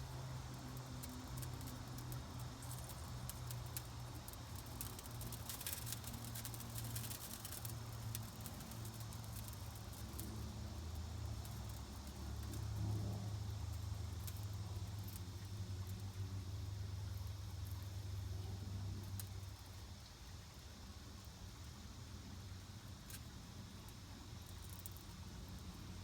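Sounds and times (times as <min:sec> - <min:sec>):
fire crackling: 0:00.1 - 0:15.2.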